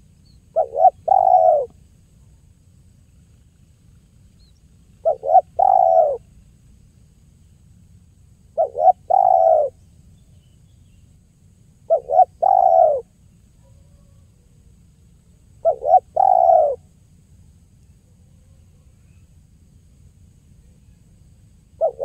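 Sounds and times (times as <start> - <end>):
dove cooing: 0.5 - 1.8, 5.0 - 6.3, 8.6 - 9.8, 11.9 - 14.2, 15.6 - 16.9, 21.8 - 22.0.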